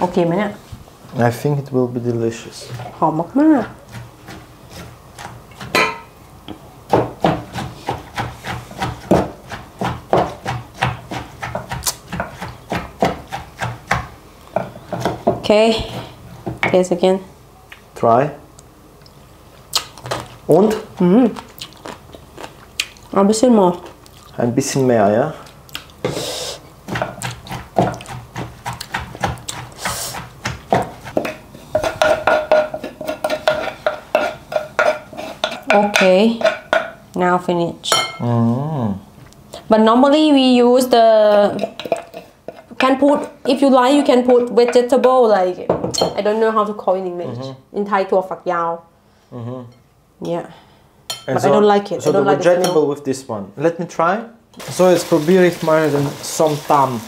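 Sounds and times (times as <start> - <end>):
pestle knocking in a mortar: 6.5 - 15.5, 26.9 - 36.9.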